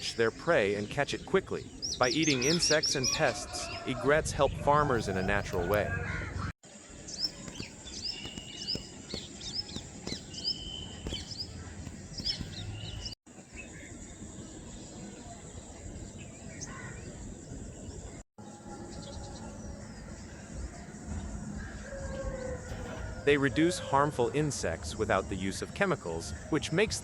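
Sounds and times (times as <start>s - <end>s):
small birds chirping: 0.0s - 18.2s.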